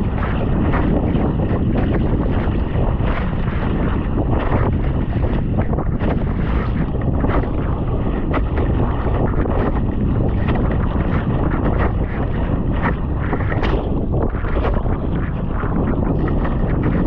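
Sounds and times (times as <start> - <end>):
water splashing along hull: 0.0 - 17.0
wind buffeting microphone: 0.0 - 17.0.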